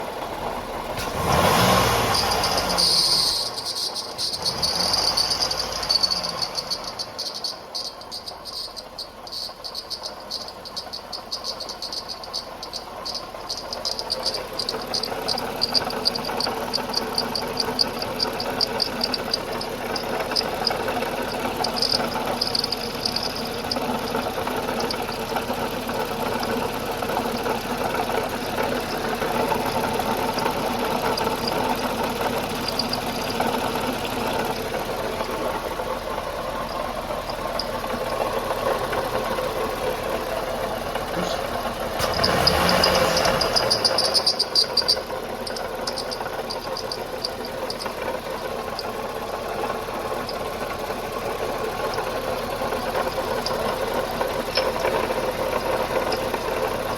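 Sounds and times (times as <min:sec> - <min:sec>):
car engine running: 0:00.0 - 0:56.9
high-pitched pulsing whistle: 0:02.1 - 0:18.0, 0:42.2 - 0:47.8.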